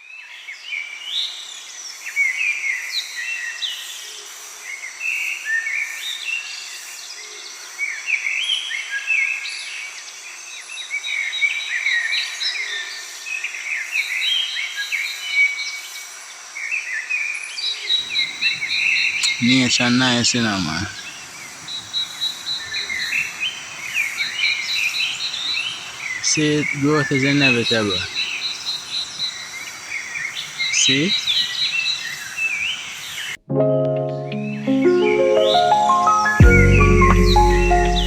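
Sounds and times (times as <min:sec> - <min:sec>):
birds singing and chirping: 0:18.0 - 0:33.4
high-pitched insect drone: 0:18.0 - 0:33.4.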